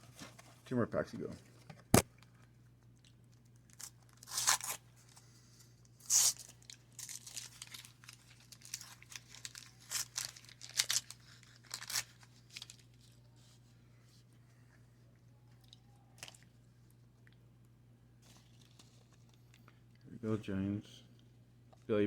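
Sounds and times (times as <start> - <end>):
wax paper wrapper tearing: 3.6 - 5.2, 6.0 - 13.3.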